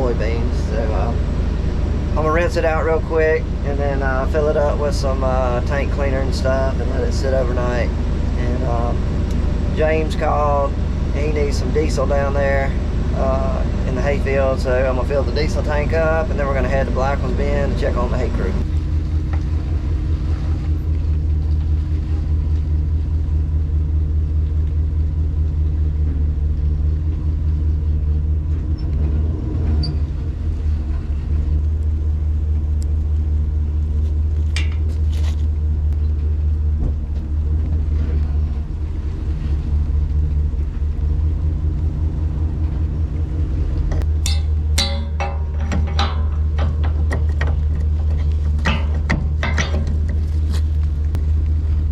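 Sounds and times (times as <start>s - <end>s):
vehicle engine rumbling: 0.0s - 51.9s.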